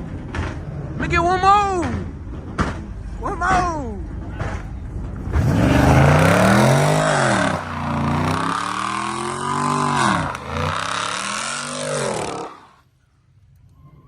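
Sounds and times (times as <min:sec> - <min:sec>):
car engine revving: 0:05.2 - 0:12.8.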